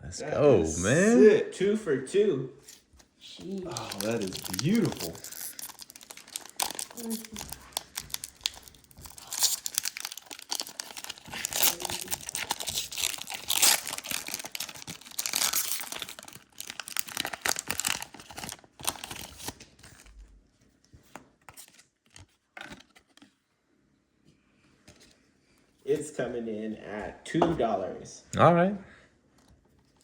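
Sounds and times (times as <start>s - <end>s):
packaging crinkling: 3.4s - 20.2s.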